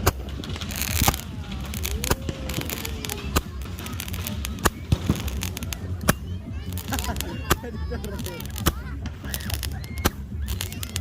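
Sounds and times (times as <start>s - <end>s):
firework hissing burst: 0.0s - 11.0s
fireworks bangs and pops: 0.0s - 11.0s.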